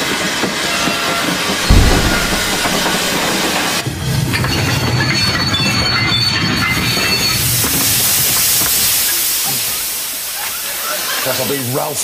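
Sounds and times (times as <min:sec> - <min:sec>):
train wheels rumbling: 0:01.7 - 0:03.5.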